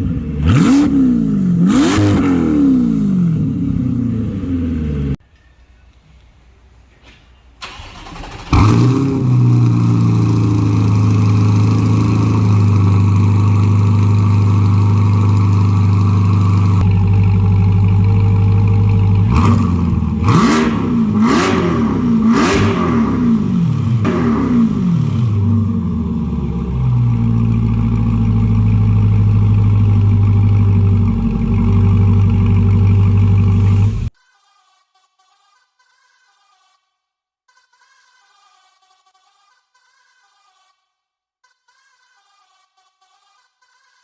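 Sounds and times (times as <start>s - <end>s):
car engine revving: 0.0s - 5.2s, 7.7s - 34.1s
car engine starting and idling: 0.0s - 5.2s, 7.6s - 34.1s.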